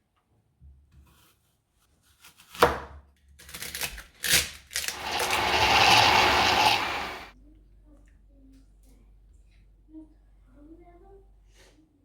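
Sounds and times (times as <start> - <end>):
steady hiss: 4.9 - 7.3.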